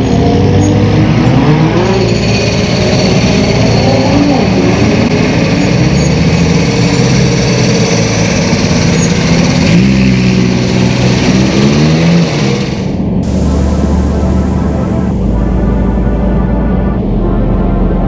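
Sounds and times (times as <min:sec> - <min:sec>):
car engine throttle blips: 0:13.2 - 0:18.0.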